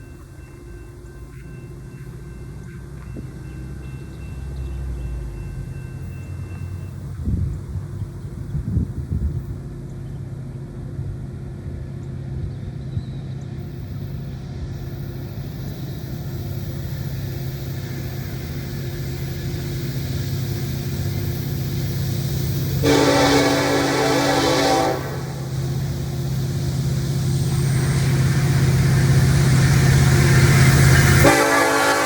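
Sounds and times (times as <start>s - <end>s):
diesel locomotive engine drone: 0.0s - 32.0s
locomotive air horn blasting: 22.7s - 26.0s, 30.9s - 32.0s.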